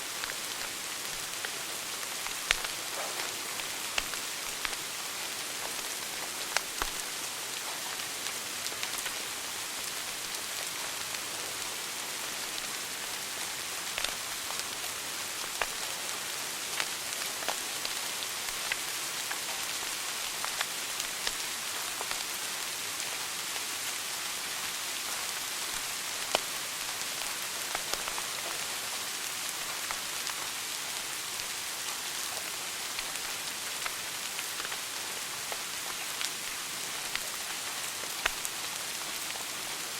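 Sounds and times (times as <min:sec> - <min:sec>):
wood fire crackling and popping: 0:00.1 - 0:07.1, 0:14.0 - 0:16.0, 0:16.6 - 0:22.3, 0:25.8 - 0:28.9, 0:32.3 - 0:34.9, 0:35.5 - 0:39.5.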